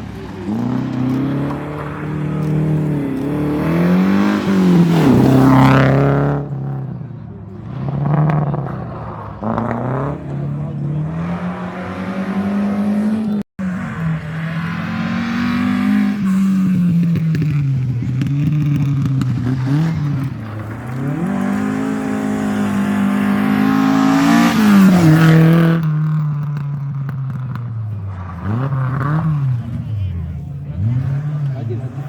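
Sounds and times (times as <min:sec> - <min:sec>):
rally car engine revving: 0:00.0 - 0:32.0.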